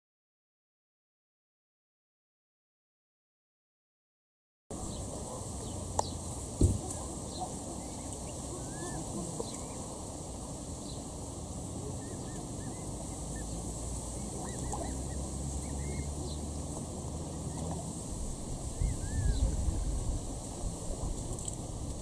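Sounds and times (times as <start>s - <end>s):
steady outdoor hiss: 4.7s - 22.0s
high bird chirps: 12.0s - 16.6s.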